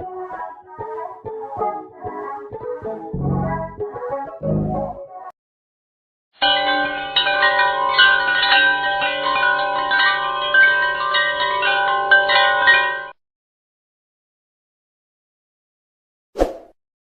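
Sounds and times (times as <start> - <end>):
chimes ringing: 6.4 - 13.2.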